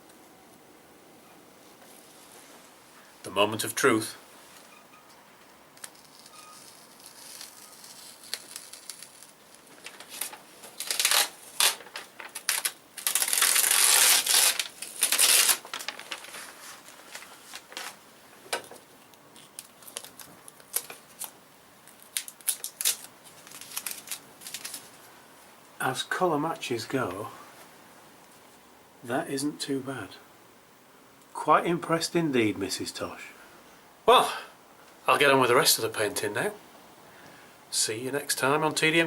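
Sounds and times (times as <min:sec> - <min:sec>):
loud ripping: 0:05.8 - 0:18.0, 0:19.4 - 0:25.0
crinkling and tearing handling: 0:05.8 - 0:25.1.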